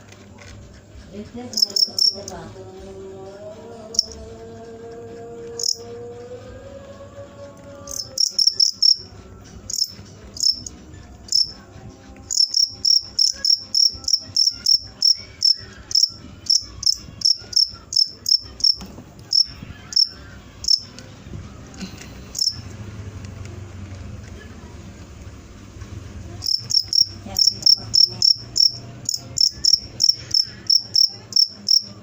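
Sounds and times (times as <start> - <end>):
cricket chirping: 1.5 - 2.4, 3.9 - 6.2, 7.2 - 11.6, 12.3 - 20.9, 22.3 - 22.6, 26.4 - 32.0.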